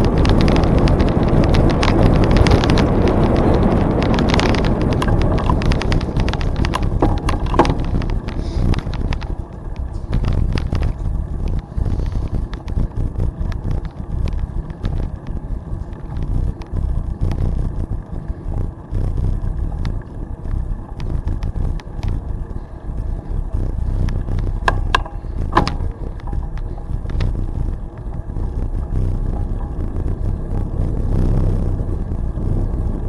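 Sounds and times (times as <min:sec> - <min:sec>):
bicycle tyre noise on trail: 0:00.0 - 0:33.0
small clicks and rattles: 0:00.0 - 0:33.0
wind rumbling on microphone: 0:00.0 - 0:33.0.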